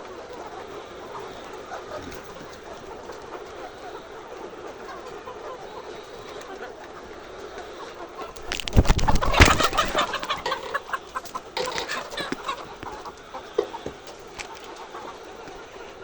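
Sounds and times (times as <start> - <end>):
chickens clucking and squawking: 0.0 - 16.0
flurry of knocks and scuffles: 8.3 - 10.4.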